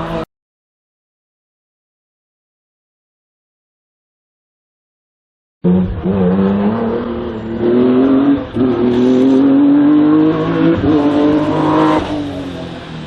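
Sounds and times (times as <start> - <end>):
race car engine accelerating: 5.6 - 13.0.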